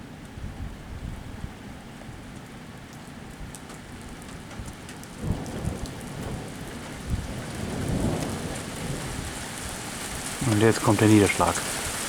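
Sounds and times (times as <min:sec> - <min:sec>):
raindrops ticking: 0:02.9 - 0:12.0
thunder rumbling: 0:04.5 - 0:12.0.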